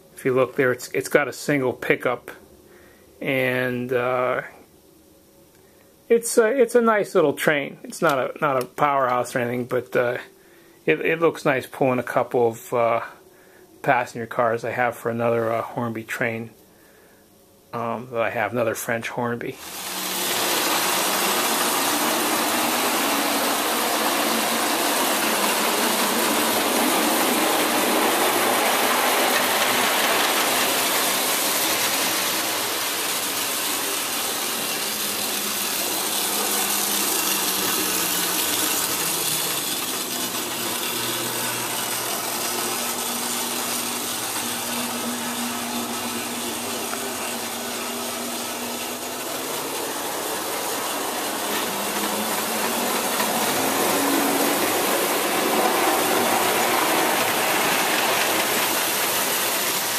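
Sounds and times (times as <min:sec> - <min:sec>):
toy train motor whirring: 0:19.6 - 0:59.9.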